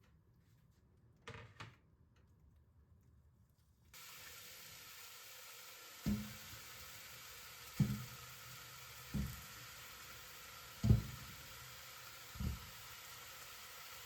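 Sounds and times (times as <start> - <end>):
frying sizzle: 4.0 - 14.0
knock on pan: 6.1 - 6.5, 7.8 - 8.2, 9.1 - 9.5, 10.8 - 11.4, 12.4 - 12.7.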